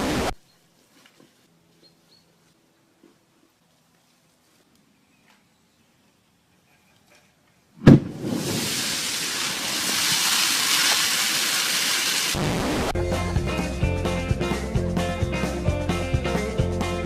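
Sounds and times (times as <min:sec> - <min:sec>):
loud bang: 0:07.8 - 0:09.0
loud rushing hiss: 0:07.9 - 0:12.9.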